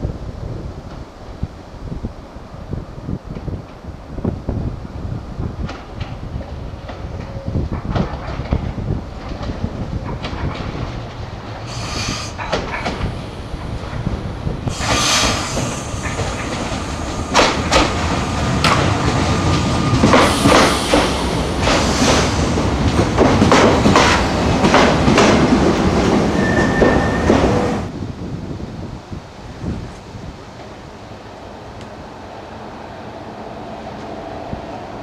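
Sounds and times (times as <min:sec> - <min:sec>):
train passing: 0:03.8 - 0:28.3, 0:30.0 - 0:35.0
wheels clicking over rails: 0:05.6 - 0:27.8
wheel squeals: 0:26.4 - 0:27.6.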